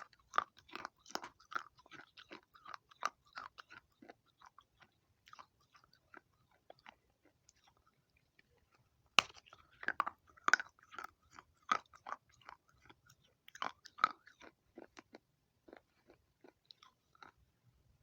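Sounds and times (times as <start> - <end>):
clay pot pieces crunching: 9.2 - 14.9.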